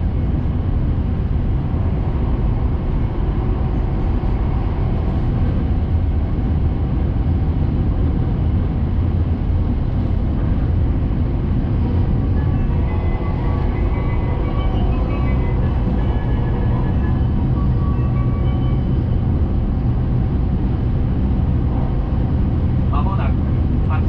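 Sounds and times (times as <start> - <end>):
train cabin rumble: 0.0 - 24.0.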